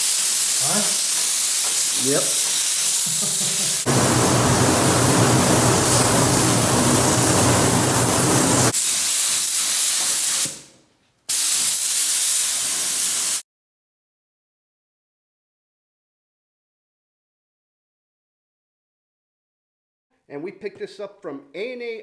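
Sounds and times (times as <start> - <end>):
loud spraying hiss: 0.0 - 10.7, 11.3 - 13.4
low hum: 3.8 - 8.7.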